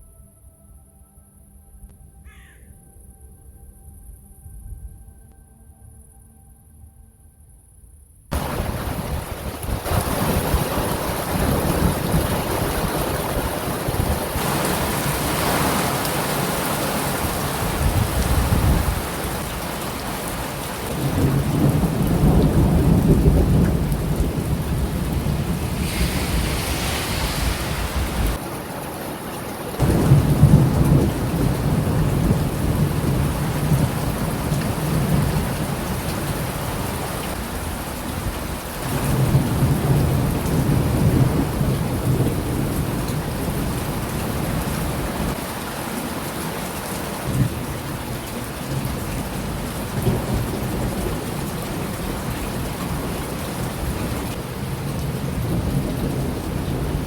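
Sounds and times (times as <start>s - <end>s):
thunder rumbling: 8.3s - 45.4s
rain falling: 8.3s - 57.0s.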